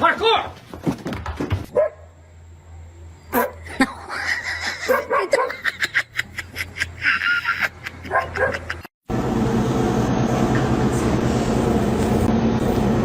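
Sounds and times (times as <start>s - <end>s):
dog barking and yipping: 1.7s - 2.1s, 3.3s - 3.7s, 4.8s - 5.7s, 8.0s - 8.9s.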